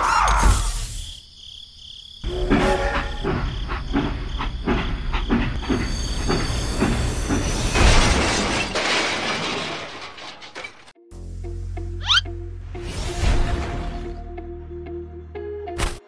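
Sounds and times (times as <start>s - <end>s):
toy train hiss: 0.4s - 1.2s
toy tractor crash: 7.8s - 11.0s.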